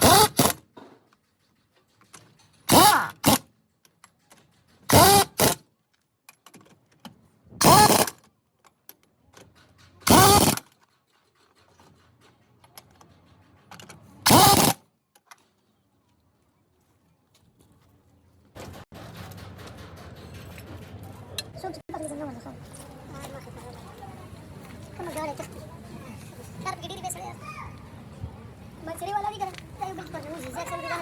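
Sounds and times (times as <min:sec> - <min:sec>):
pneumatic impact wrench: 0:00.0 - 0:00.7, 0:02.7 - 0:03.5, 0:04.9 - 0:05.6, 0:07.6 - 0:08.2, 0:10.0 - 0:10.7, 0:14.2 - 0:14.8.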